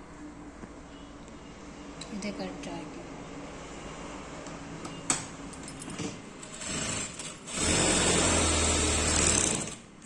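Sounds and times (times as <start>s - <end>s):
electric sewing machine stitching: 6.4s - 9.9s.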